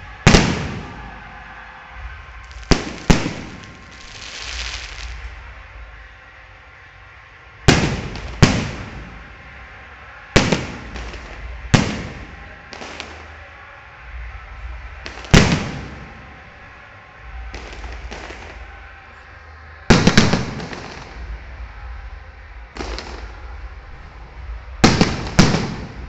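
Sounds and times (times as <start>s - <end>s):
fireworks bangs with echo: 0.0s - 6.1s, 7.5s - 19.2s, 19.8s - 26.0s
faint fireworks pops: 2.2s - 5.4s, 7.7s - 9.3s, 10.4s - 13.4s, 14.8s - 16.4s, 17.4s - 18.8s, 19.9s - 21.3s, 22.7s - 23.5s, 24.8s - 26.0s.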